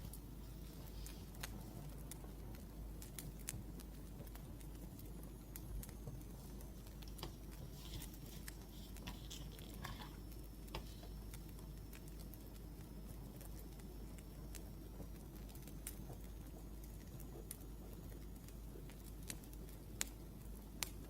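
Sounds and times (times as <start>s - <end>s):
firewood crackling and popping: 0.0s - 21.0s.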